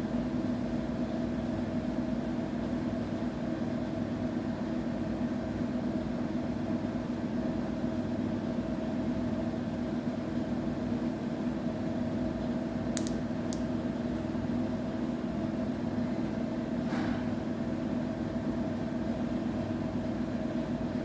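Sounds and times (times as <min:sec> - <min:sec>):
short clicks: 0:13.0 - 0:13.7.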